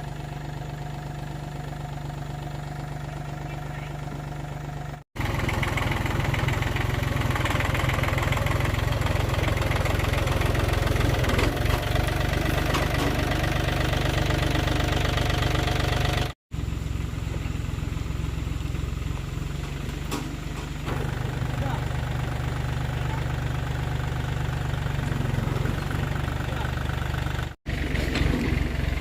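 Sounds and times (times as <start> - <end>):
old tractor engine running: 0.0 - 29.0.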